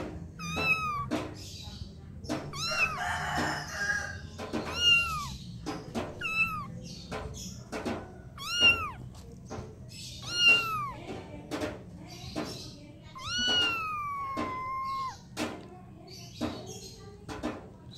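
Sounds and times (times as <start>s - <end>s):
kittens mewing: 0.0s - 1.4s, 2.3s - 6.8s, 8.2s - 9.2s, 10.0s - 11.2s, 13.1s - 15.4s.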